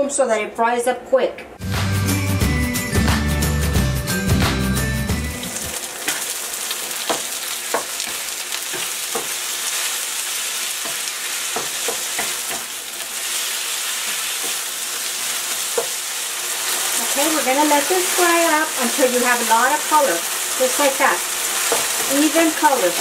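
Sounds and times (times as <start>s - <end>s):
chicken sizzling in hot oil: 5.4s - 23.0s.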